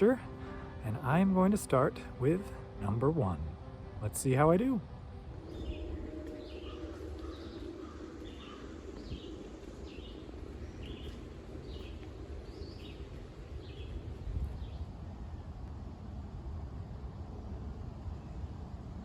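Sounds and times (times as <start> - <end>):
songbird calling: 0.0 - 14.9
low steady rumble: 0.0 - 19.0.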